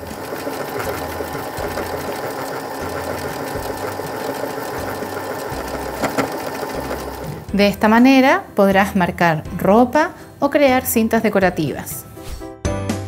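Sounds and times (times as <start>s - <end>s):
sewing machine running: 0.0s - 7.5s.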